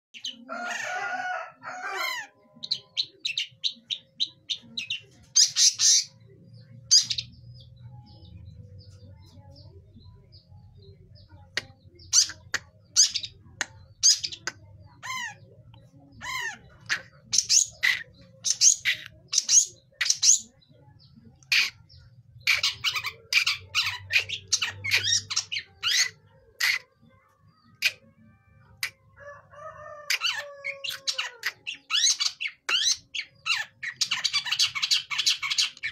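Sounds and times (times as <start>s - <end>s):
bird chirps and squawks: 1.7s - 7.6s, 11.6s - 13.4s, 14.0s - 20.6s, 21.4s - 29.0s, 30.1s - 35.9s.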